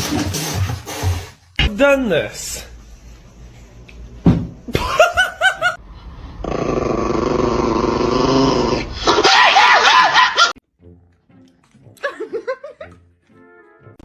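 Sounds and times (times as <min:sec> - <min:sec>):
loud rough sound: 0:05.8 - 0:09.2
animal yelping: 0:09.0 - 0:10.5.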